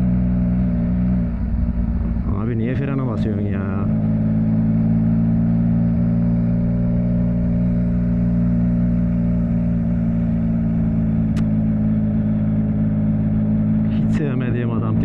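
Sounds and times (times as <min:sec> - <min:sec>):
motorcycle engine cruising: 0:00.0 - 0:15.0
short click: 0:11.3 - 0:11.5.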